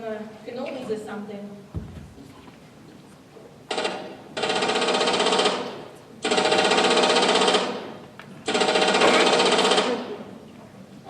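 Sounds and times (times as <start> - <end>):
pneumatic rivet gun hammering: 3.7 - 10.0.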